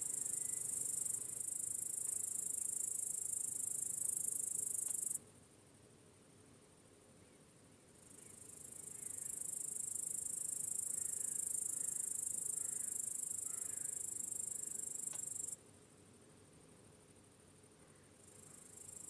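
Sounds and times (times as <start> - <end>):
cricket trilling: 0.0 - 5.2, 8.1 - 15.6, 18.2 - 19.0
faint meadow ambience: 0.0 - 19.0.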